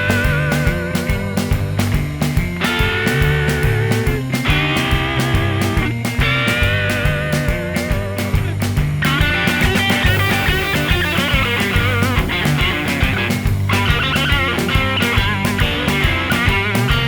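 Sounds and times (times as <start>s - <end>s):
bass and drums: 0.0s - 17.0s
lead guitar solo: 2.6s - 17.0s.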